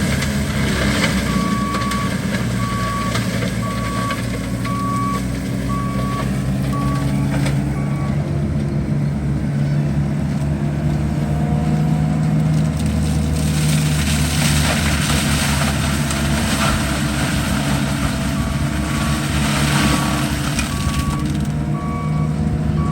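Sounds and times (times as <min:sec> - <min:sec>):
skid steer engine running: 0:00.0 - 0:22.9
backup alarm beeping: 0:01.3 - 0:08.2, 0:20.7 - 0:22.9.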